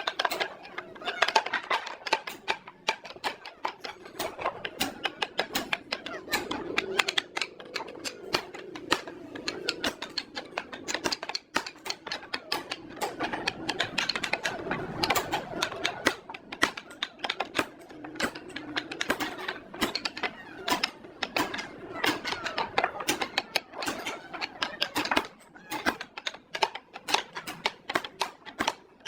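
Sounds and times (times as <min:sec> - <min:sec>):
rapid clicking and tapping: 0:00.0 - 0:29.0.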